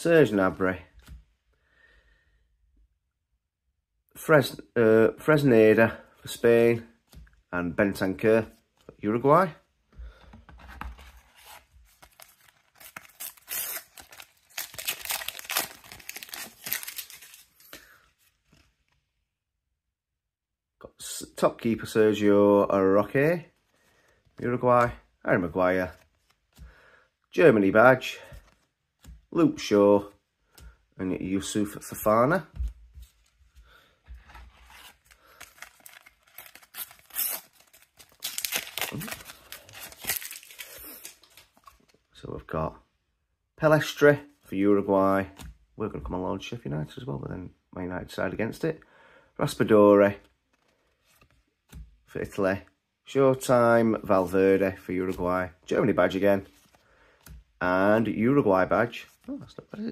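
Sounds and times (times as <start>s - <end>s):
wrapper being torn and crinkled: 11.9s - 17.8s, 34.8s - 41.8s.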